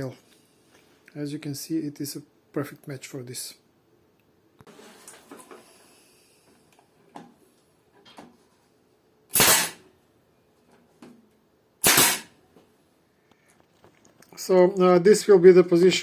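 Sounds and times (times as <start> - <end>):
hammer driving nails into wood: 9.3 - 9.8, 11.8 - 12.3.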